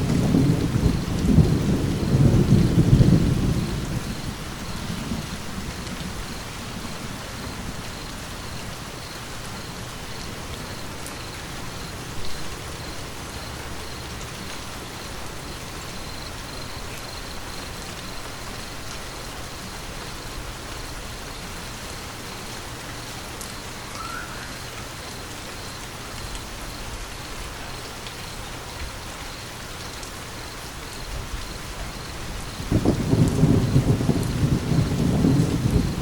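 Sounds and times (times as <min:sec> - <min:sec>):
low roll of thunder: 0:00.0 - 0:08.0, 0:31.2 - 0:36.0
steady rain: 0:00.0 - 0:36.0.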